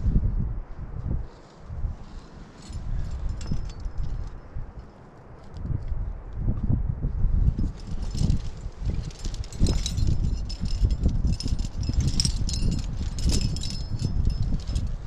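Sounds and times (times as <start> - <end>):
metal climbing gear clinking: 1.3 - 5.6, 7.4 - 15.0.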